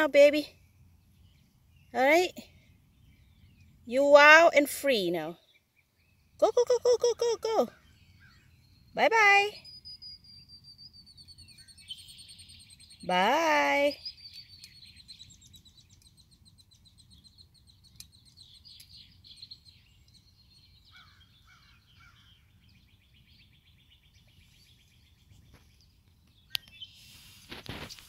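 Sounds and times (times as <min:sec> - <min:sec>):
bird chirps: 0:00.0 - 0:28.0
bird trilling: 0:06.6 - 0:20.0, 0:20.6 - 0:24.0.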